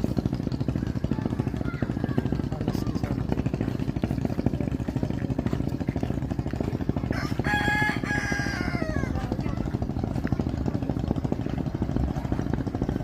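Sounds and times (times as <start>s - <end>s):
engine running: 0.0s - 13.0s
rooster crowing: 7.1s - 9.3s.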